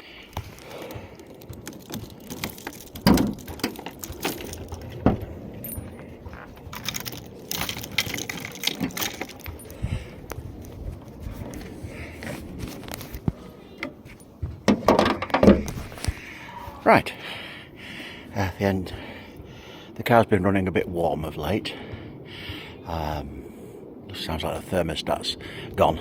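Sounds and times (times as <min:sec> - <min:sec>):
small hard objects clinking: 0:00.4 - 0:09.8.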